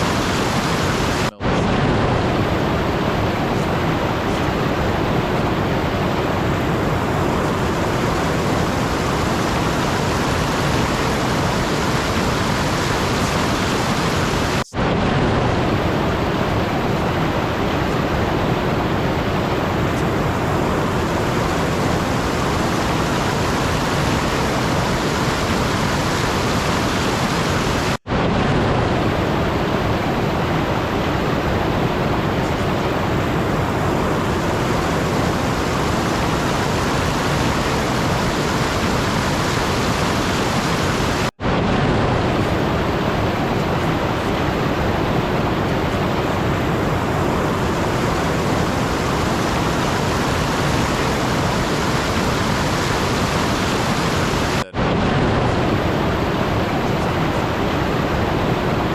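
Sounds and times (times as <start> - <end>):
steady rushing noise: 0.0 - 58.9.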